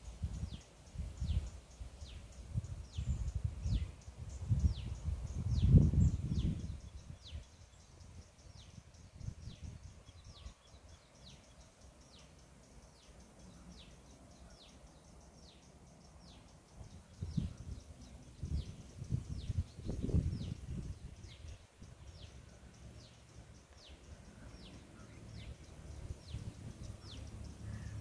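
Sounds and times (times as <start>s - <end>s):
low rumble on microphone: 2.6s - 7.3s, 16.8s - 22.2s
bird calling: 21.4s - 28.0s.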